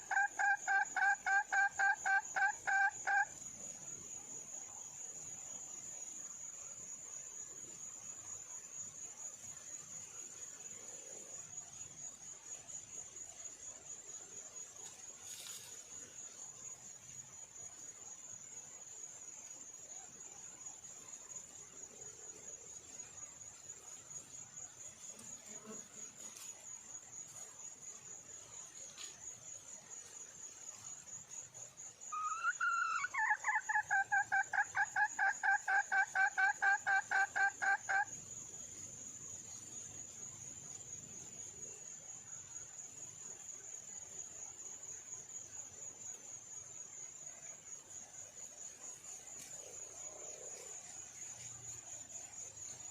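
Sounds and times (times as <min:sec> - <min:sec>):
insects trilling: 0:00.0 - 0:52.9
hen clucking: 0:00.1 - 0:03.3, 0:32.2 - 0:38.1.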